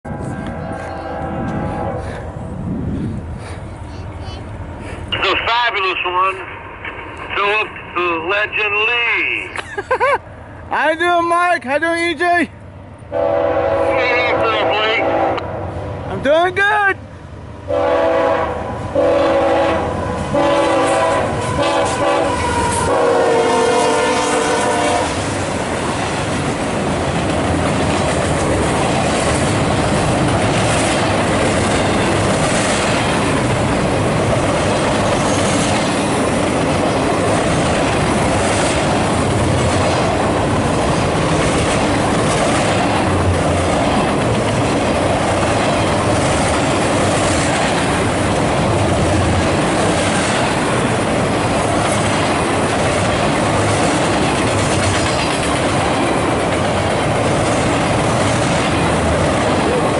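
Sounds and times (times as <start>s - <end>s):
locomotive horn blasts: 0.1s - 2.2s, 13.1s - 15.6s, 17.7s - 25.2s
train wheels clicking over rail joints: 23.5s - 59.8s.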